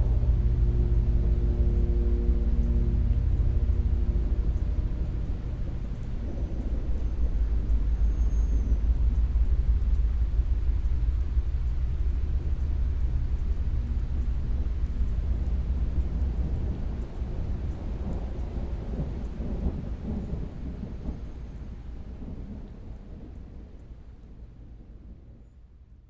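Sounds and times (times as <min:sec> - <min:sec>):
music held notes: 0:00.0 - 0:09.9
rolling thunder: 0:00.0 - 0:25.4
steady rain: 0:00.0 - 0:26.0.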